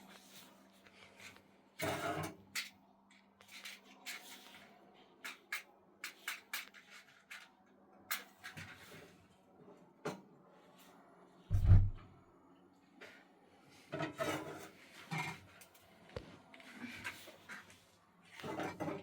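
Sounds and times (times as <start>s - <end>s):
scraping and rubbing: 11.5s - 12.0s.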